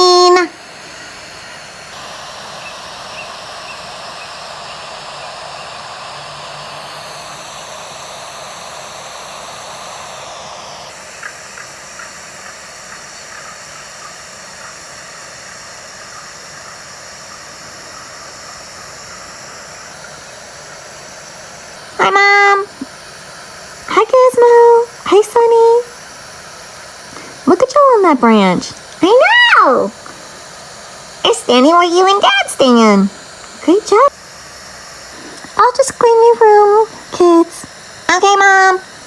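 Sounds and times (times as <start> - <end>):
steady outdoor hiss: 0.0 - 39.0.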